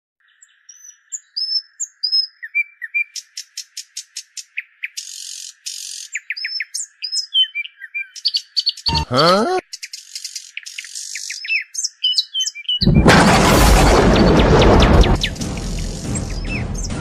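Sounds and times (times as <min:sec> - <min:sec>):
birds chirping and whistling: 0:00.4 - 0:03.7, 0:04.4 - 0:09.1, 0:09.7 - 0:13.0, 0:14.1 - 0:17.0.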